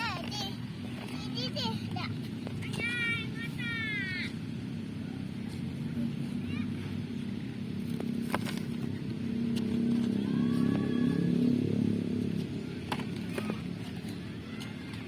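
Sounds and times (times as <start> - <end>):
vehicle engine passing by: 4.8 - 14.7.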